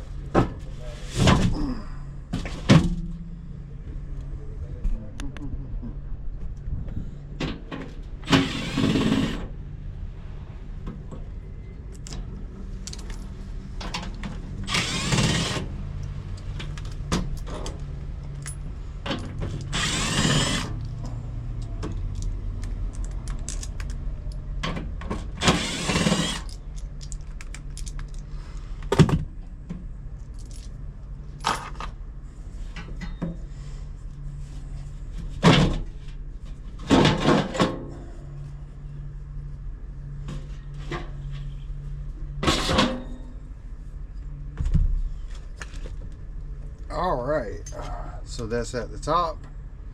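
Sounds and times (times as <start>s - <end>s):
steady low hum: 0.0s - 49.9s
tools and metal parts clattering: 30.2s - 30.8s, 31.4s - 32.0s.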